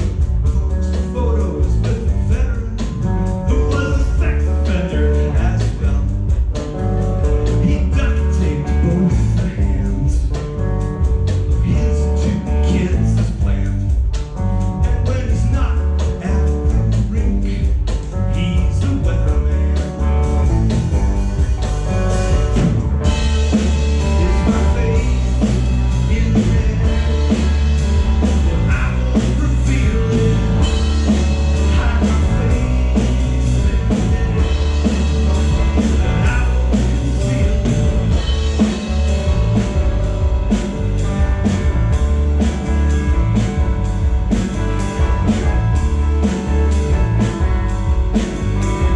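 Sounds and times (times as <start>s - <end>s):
live rock band playing: 0.0s - 48.9s
person singing: 7.5s - 10.4s, 14.8s - 38.8s.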